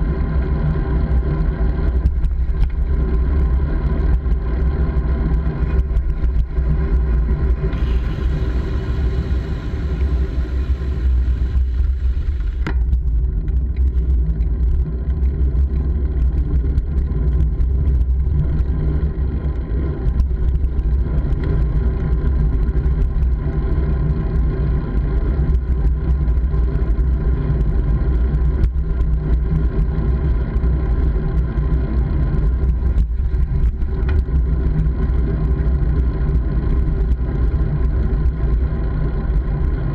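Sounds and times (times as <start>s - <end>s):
bike ride rumble: 0.0s - 39.9s
bright hiss: 7.8s - 12.6s.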